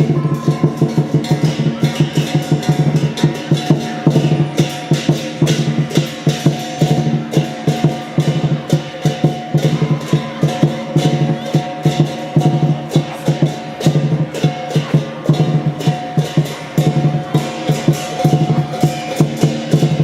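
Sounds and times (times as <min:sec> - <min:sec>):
cymbals crashing: 0:00.0 - 0:20.0
percussion drums: 0:00.0 - 0:20.0.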